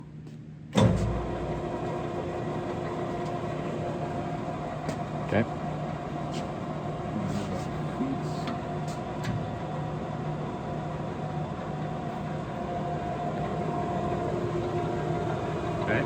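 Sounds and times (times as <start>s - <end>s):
lathe running: 7.9s - 16.0s.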